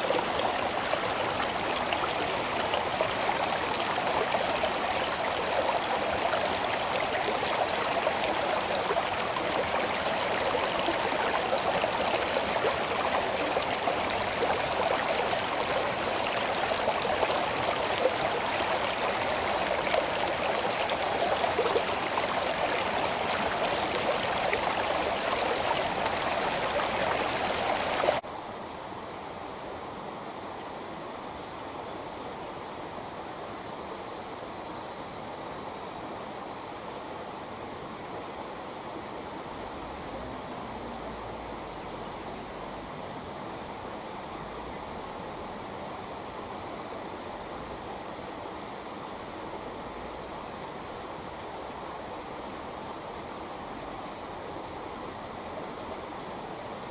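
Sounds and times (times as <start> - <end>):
creek water rushing: 0.0 - 28.3, 29.3 - 56.9.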